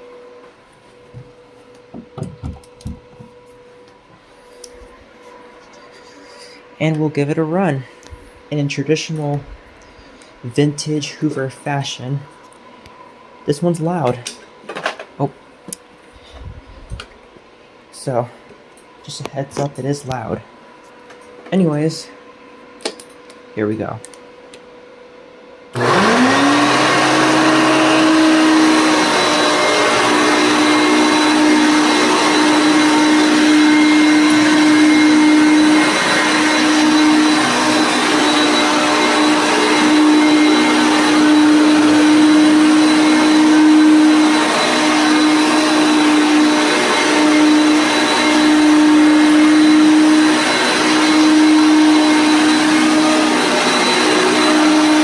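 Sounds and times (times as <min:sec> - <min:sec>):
vacuum cleaner motor running: 0:25.0 - 0:55.0.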